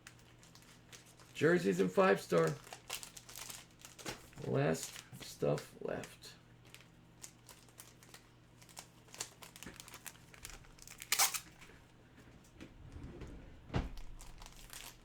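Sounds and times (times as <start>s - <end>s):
plastic packaging crinkling: 0.0s - 5.1s, 6.6s - 11.7s, 14.0s - 15.0s.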